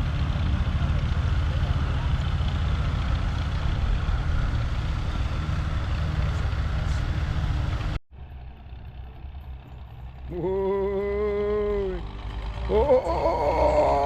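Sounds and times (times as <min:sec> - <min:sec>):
quieter engine idling: 0:00.0 - 0:14.0
tractor engine running: 0:00.0 - 0:14.0
person shouting whoa: 0:12.7 - 0:14.0.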